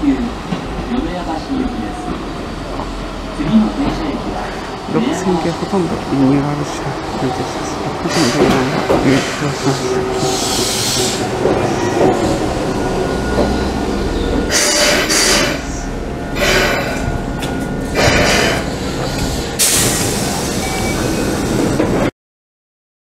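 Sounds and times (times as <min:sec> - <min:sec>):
electric train rumbling to a stop: 0:00.0 - 0:22.1
train doors sliding open: 0:07.7 - 0:22.1
air hiss: 0:10.3 - 0:11.3.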